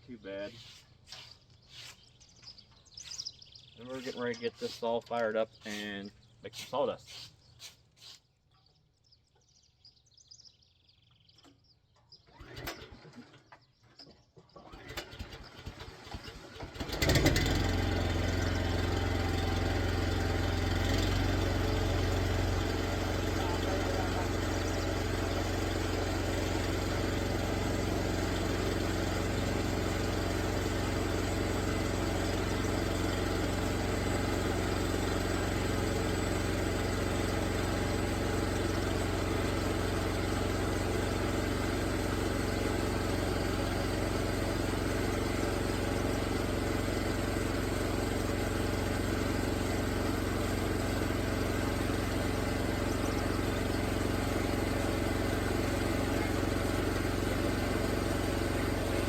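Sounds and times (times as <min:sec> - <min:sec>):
sawmill engine running: 0:14.6 - 0:59.0.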